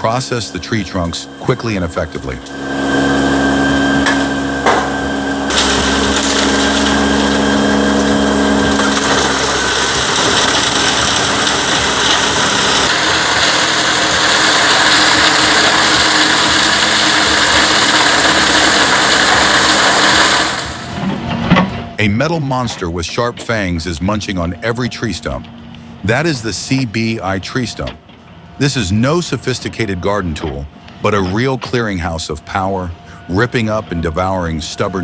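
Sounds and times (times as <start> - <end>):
tree trunks grinding and crunching: 0.0 - 21.4
machine engine running: 0.0 - 35.0.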